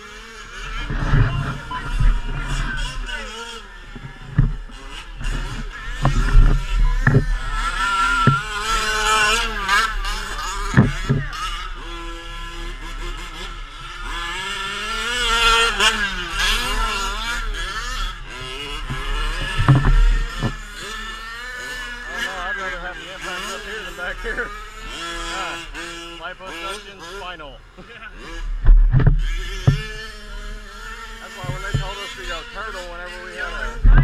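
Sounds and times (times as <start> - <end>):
truck engine revving: 0.0 - 34.0
sharp knocks and thumps: 3.9 - 7.4, 8.2 - 8.9, 10.7 - 11.3, 18.9 - 20.6, 28.6 - 30.1, 31.4 - 32.0, 33.8 - 34.0.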